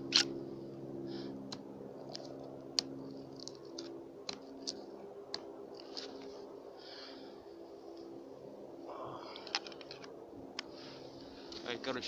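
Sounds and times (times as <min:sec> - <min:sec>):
steady low hum: 0:00.0 - 0:12.0
campfire crackling and popping: 0:01.4 - 0:06.3.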